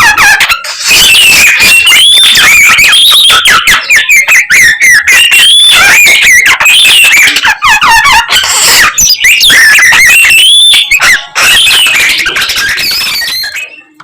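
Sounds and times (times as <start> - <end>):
bird singing whistles and trills: 0.0 - 14.0.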